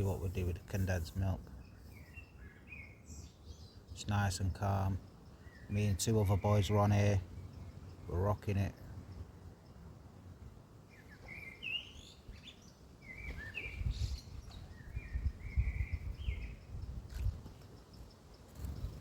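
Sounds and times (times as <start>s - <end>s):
robin singing: 0.0s - 19.0s
wind rumble on microphone: 12.1s - 19.0s.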